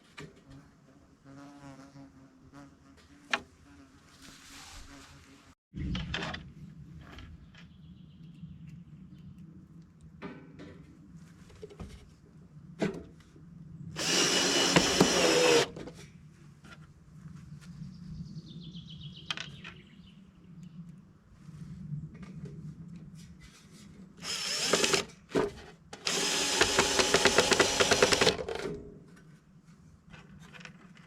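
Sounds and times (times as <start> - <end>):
power tool running: 14.0 - 15.7, 24.2 - 25.1, 26.0 - 28.6.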